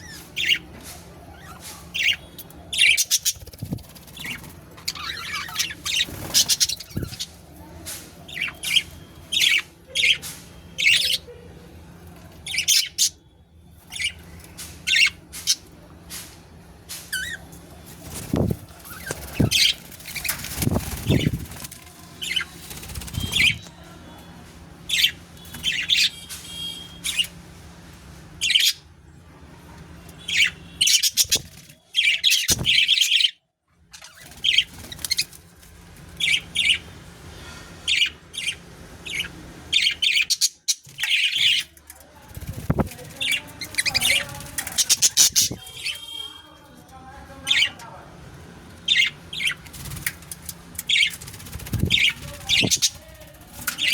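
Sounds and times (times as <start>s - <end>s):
budgerigars chirping: 4.2s - 7.4s, 43.2s - 46.2s.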